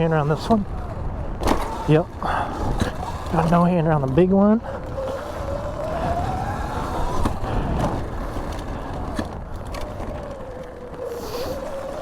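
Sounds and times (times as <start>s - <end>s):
electric motor whining: 0.0s - 12.0s
wind rush: 0.0s - 12.0s.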